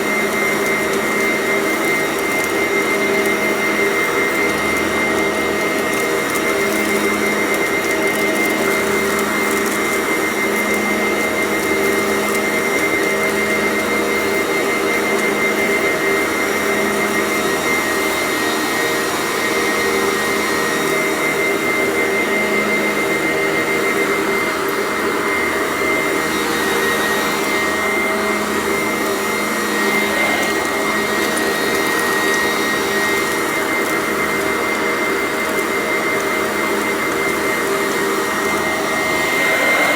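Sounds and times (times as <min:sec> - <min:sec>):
vacuum cleaner running: 0:00.0 - 0:39.9
debris crunching in vacuum: 0:25.2 - 0:39.9.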